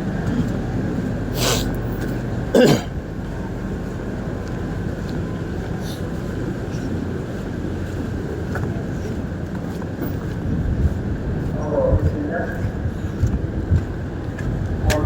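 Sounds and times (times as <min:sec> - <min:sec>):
distant road traffic hum: 0:00.0 - 0:15.0
loud cough-like sound: 0:02.5 - 0:03.0.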